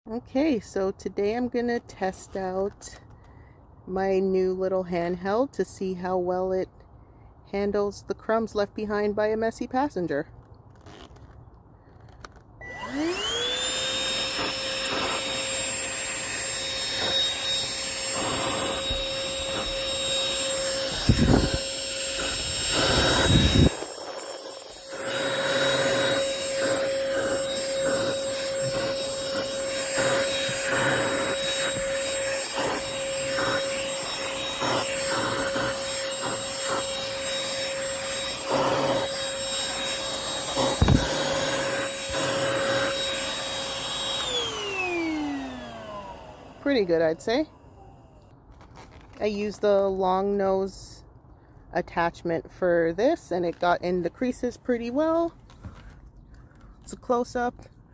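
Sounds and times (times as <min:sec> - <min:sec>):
handheld vacuum whine: 0:12.0 - 0:48.2.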